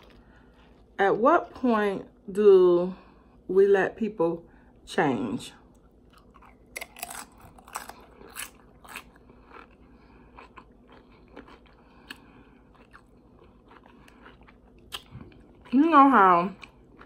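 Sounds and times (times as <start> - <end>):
chewing crunchy chips: 0.0 - 1.0, 5.7 - 17.0.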